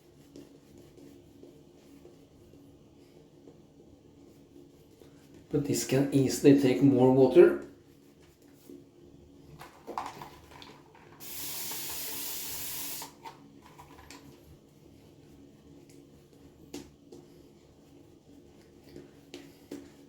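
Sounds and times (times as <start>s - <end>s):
water hissing: 11.2s - 13.1s.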